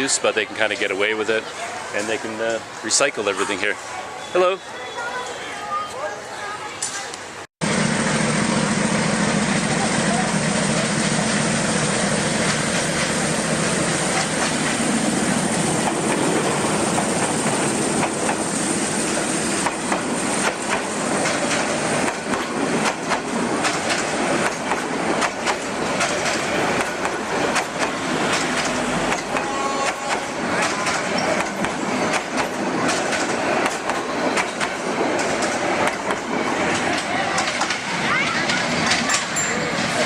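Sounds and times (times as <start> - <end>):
train running noise: 0.0 - 40.0
train wheels clattering: 9.7 - 40.0.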